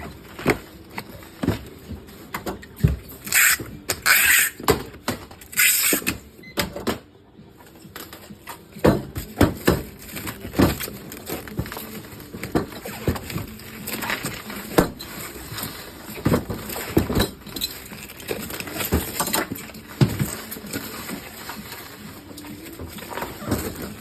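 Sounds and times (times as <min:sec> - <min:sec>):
knocks of objects being handled: 0:07.9 - 0:24.0.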